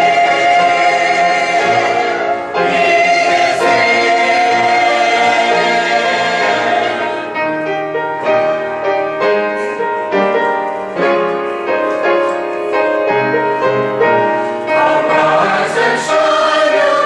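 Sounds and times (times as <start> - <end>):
held choral chord: 0.0 - 9.3, 13.3 - 17.0
piano chords: 0.0 - 17.0.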